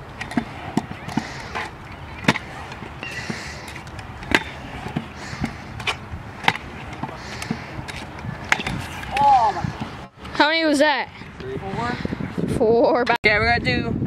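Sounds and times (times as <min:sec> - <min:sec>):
scooter wheels landing clack: 0:00.2 - 0:09.9.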